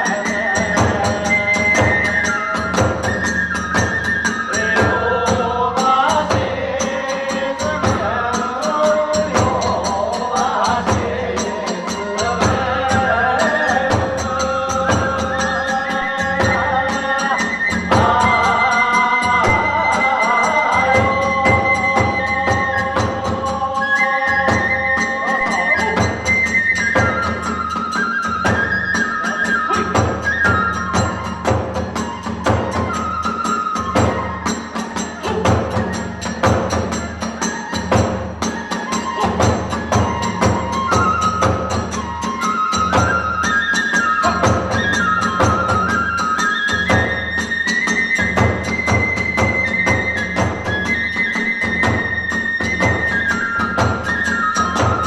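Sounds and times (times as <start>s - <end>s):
bamboo flute melody: 0.0s - 55.0s
drums beating: 0.0s - 55.0s.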